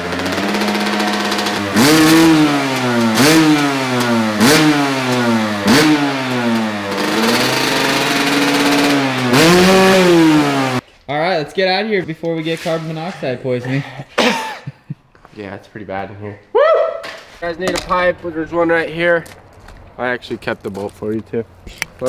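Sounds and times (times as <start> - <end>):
dirt bike engine revving: 0.0 - 10.8, 17.4 - 22.0.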